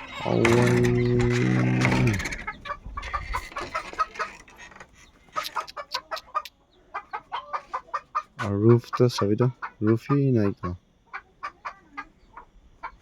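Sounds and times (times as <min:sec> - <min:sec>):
chickens clucking: 0:00.0 - 0:13.0
steady low drone: 0:00.2 - 0:03.0.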